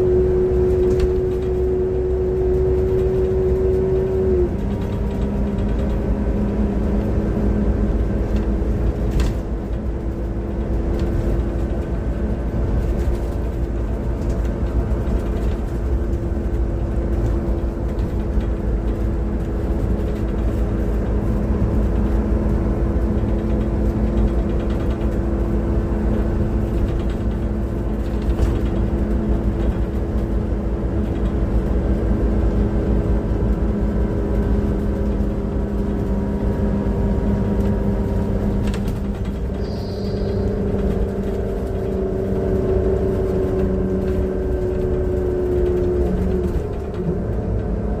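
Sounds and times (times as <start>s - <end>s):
bus engine rumbling: 0.0s - 48.0s
engine whining tones: 32.5s - 48.0s.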